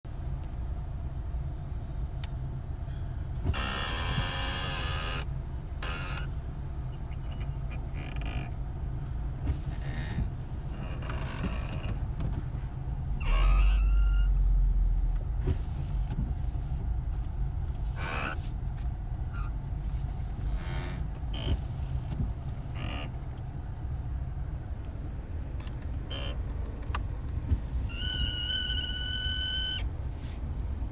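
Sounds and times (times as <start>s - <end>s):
heater flap squeaking: 27.8s - 29.9s.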